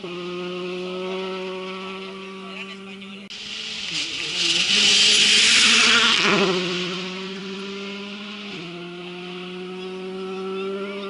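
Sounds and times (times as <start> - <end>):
rally car engine revving past: 0.0 - 11.0
gravel spray: 3.3 - 10.0.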